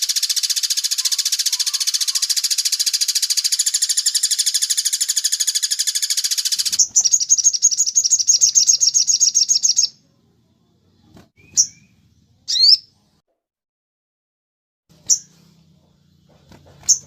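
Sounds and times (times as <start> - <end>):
high-pitched bird trill: 0.0 - 10.0, 11.4 - 12.9, 15.0 - 15.4
short sharp bird chirps: 0.0 - 10.0, 11.1 - 12.9.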